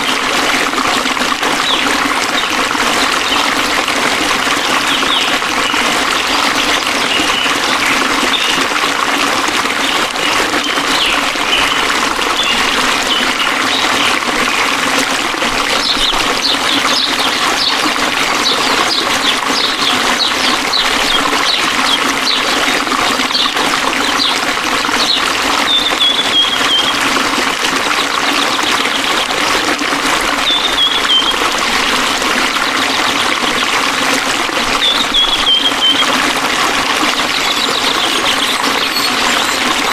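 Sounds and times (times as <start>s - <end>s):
stream flowing: 0.0s - 39.9s
small birds chirping: 4.7s - 8.6s, 10.2s - 14.1s, 15.8s - 22.6s, 25.0s - 27.0s, 30.4s - 31.4s, 34.8s - 36.2s, 37.3s - 39.9s.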